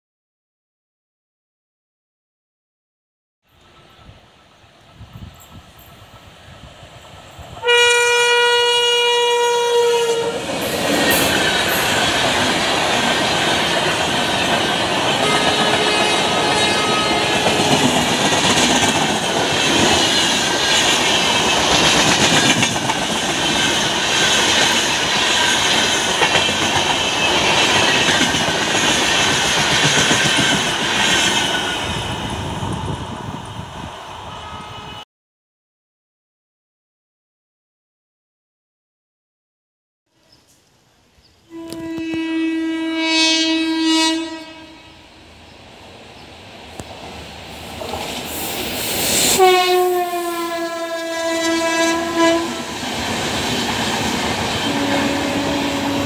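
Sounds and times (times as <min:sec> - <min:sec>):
locomotive air horn blast: 0:07.6 - 0:10.5, 0:15.2 - 0:17.9, 0:41.5 - 0:45.1, 0:49.2 - 0:52.8, 0:54.6 - 0:56.0
train wheels clattering on rails: 0:10.5 - 0:32.8.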